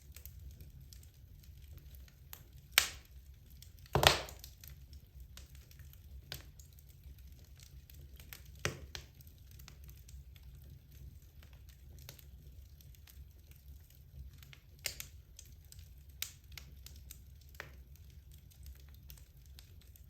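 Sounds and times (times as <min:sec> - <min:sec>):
wood fire crackling: 0:00.0 - 0:20.0
loud fire pops: 0:02.7 - 0:03.1, 0:03.8 - 0:04.7.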